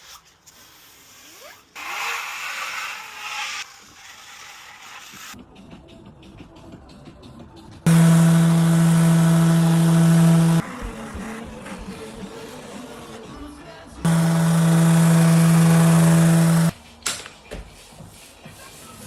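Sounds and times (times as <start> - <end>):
power tool motor running: 7.9 - 11.4, 14.0 - 16.7.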